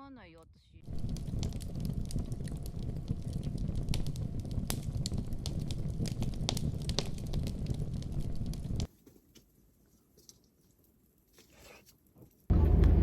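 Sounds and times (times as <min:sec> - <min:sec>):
fire pops and snaps: 0:00.8 - 0:08.9
low fire rumble: 0:00.8 - 0:08.9, 0:12.5 - 0:13.0
campfire crackling: 0:00.8 - 0:11.4.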